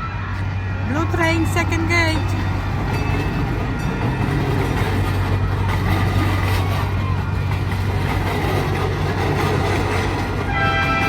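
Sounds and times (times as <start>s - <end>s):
miniature train engine humming: 0.0s - 11.0s.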